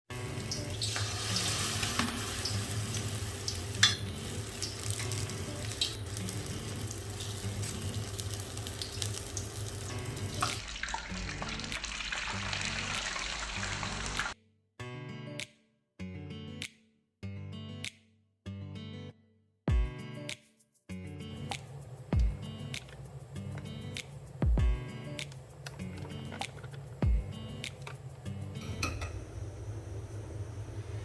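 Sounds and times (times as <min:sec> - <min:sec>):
food deep-frying in oil: 0:00.2 - 0:14.3.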